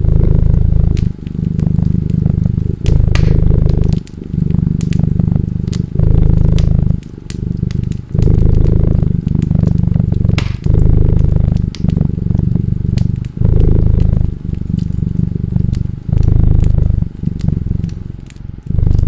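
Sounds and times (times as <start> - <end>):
cat purring: 0.0 - 19.0
wood fire crackling: 0.0 - 19.0.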